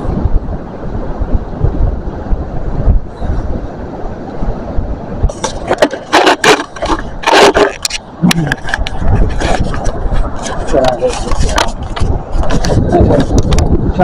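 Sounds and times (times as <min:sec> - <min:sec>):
wind rumbling on microphone: 0:00.0 - 0:14.0
camera handling scrapes and rustles: 0:05.3 - 0:13.7.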